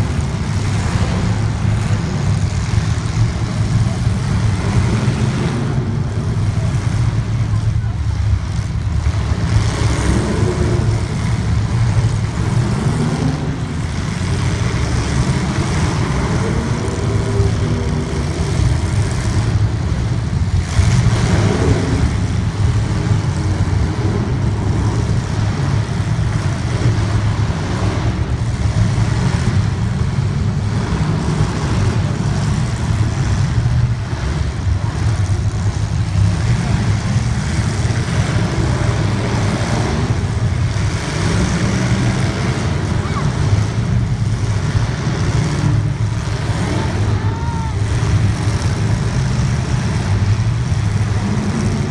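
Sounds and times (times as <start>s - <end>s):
heavy rumble: 0.0s - 51.9s
race car engine revving: 0.0s - 51.9s.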